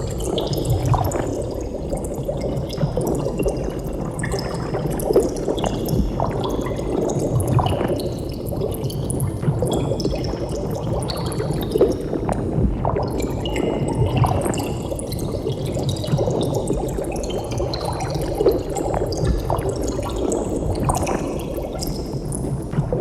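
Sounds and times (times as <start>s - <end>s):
water bubbling and gurgling: 0.0s - 23.0s.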